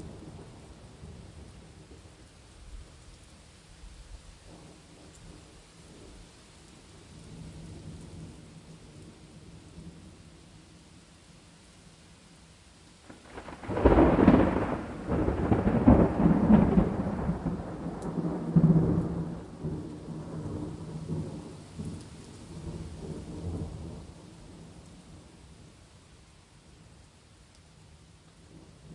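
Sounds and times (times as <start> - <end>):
steady rain: 0.0 - 28.9
thunder rumbling: 13.1 - 25.4.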